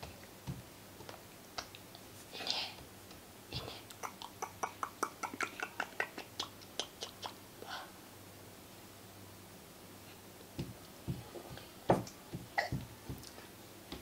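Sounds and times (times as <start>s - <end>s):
soft breathy sounds: 2.2s - 2.9s, 3.5s - 8.1s.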